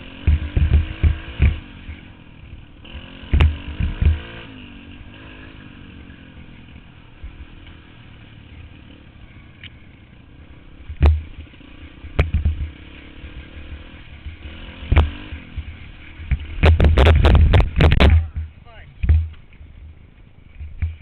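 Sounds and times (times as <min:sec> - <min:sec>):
dirt bike engine running: 0:00.0 - 0:21.0
loud knocks and thumps: 0:16.3 - 0:19.4.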